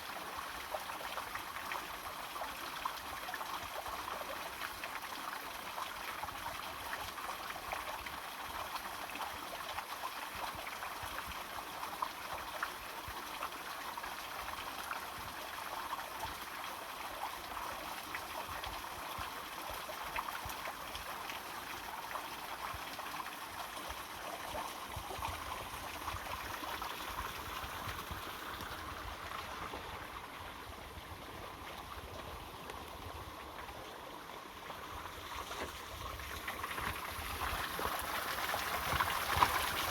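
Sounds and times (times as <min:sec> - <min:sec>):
water splashing over rocks: 0:35.3 - 0:39.9.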